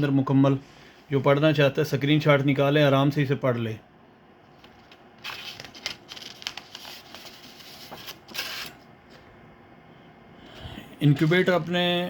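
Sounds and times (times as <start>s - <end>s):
paper rustling and pages turning: 4.5s - 9.2s.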